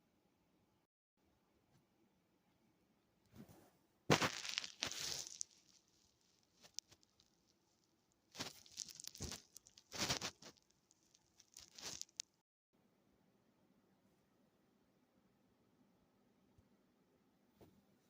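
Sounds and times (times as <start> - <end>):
crinkling rustling noise: 3.4 - 12.4.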